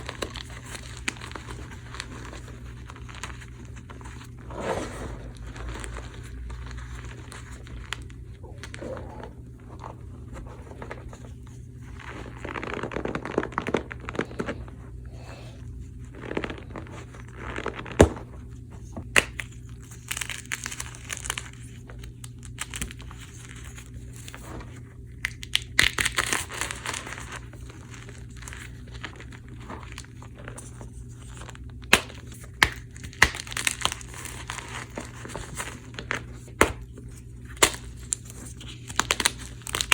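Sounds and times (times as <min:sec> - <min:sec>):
chalk blocks crushing and crunching: 0:19.1 - 0:21.8, 0:25.2 - 0:39.9.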